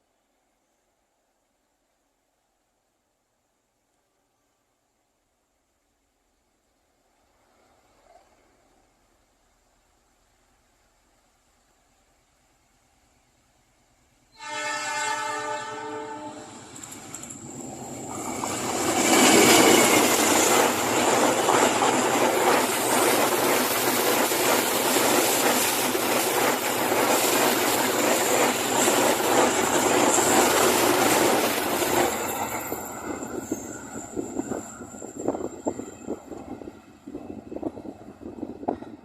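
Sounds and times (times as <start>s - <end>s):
train wheels on rails: 7.0s - 39.0s
train horn: 14.3s - 16.6s.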